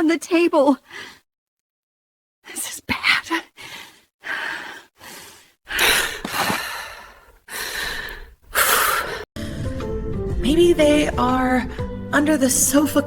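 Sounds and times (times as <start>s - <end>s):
woman breathing hard and gasping: 3.6s - 9.7s.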